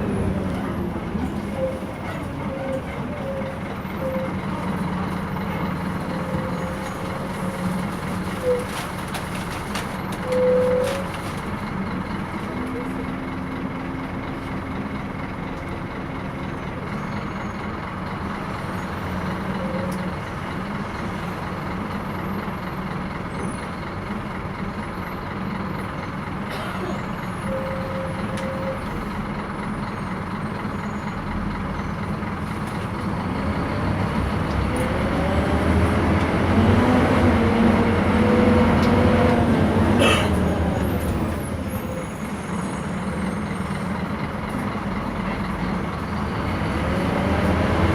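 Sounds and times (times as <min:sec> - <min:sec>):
bus engine running: 0:00.0 - 0:47.9.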